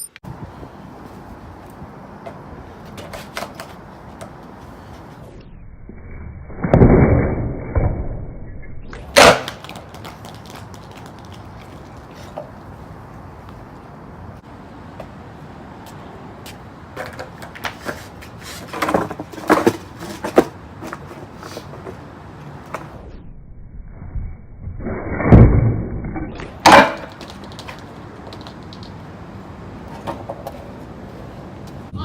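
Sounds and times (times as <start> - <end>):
skateboard wheels rolling: 0.3 - 5.4, 9.0 - 15.2, 15.8 - 23.2, 26.4 - 31.9
skateboard clacks: 2.3 - 4.5, 9.0 - 12.5, 16.5 - 22.0, 26.6 - 29.0
skateboard slam: 6.5 - 8.1, 9.0 - 11.1, 26.4 - 28.8.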